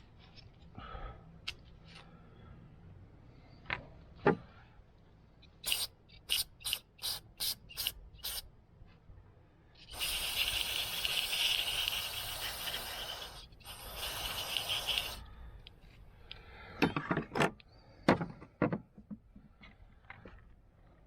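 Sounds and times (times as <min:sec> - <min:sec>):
aerosol spray hissing: 0:05.6 - 0:08.4, 0:09.9 - 0:15.3.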